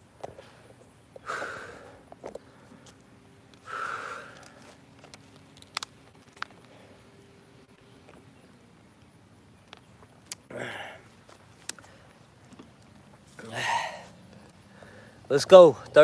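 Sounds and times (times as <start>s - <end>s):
man breathing out hard: 0.4s - 2.8s, 3.6s - 4.6s, 10.5s - 11.1s, 13.4s - 14.1s.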